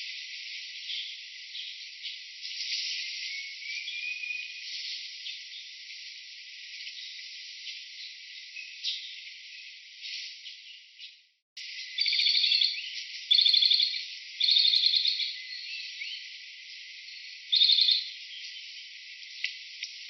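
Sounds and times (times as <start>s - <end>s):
insect chirping in pulsed trills: 11.6s - 20.0s.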